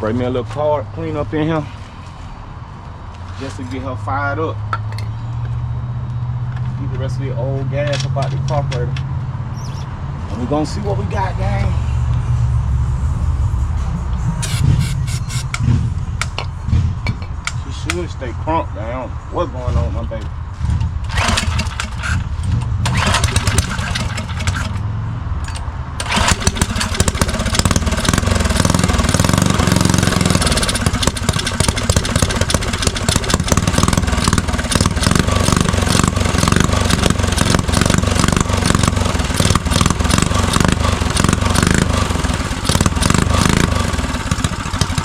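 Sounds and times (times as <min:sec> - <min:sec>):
mini bike engine running: 0:21.1 - 0:22.2, 0:22.8 - 0:24.8, 0:26.0 - 0:45.0.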